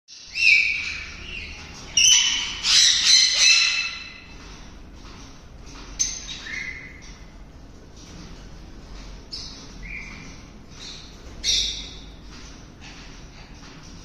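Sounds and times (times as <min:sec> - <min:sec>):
small birds chirping and whistling: 0:00.1 - 0:04.5, 0:05.7 - 0:07.4, 0:09.2 - 0:13.8.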